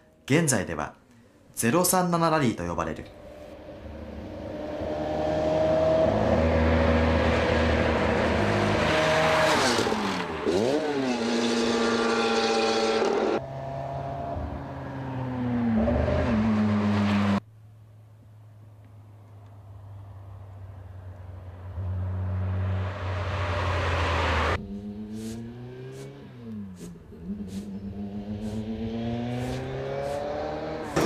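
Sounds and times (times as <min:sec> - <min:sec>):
car engine revving: 0:03.1 - 0:17.4, 0:21.4 - 0:31.0.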